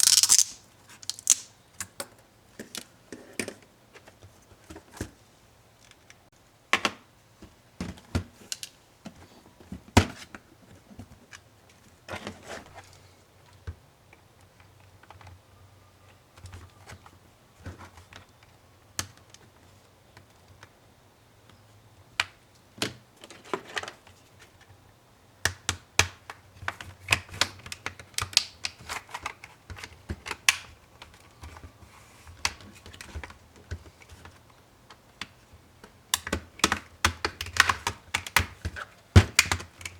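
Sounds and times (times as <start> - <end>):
plastic parts clicking and tapping: 0.0 - 4.1, 32.3 - 39.9.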